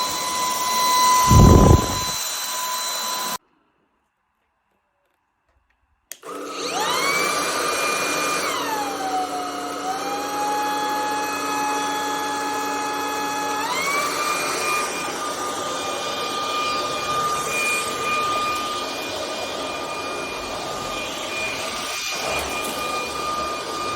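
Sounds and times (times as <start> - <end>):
stick vacuum motor whining: 0.0 - 3.4, 6.1 - 23.9
rush of air: 1.2 - 2.2.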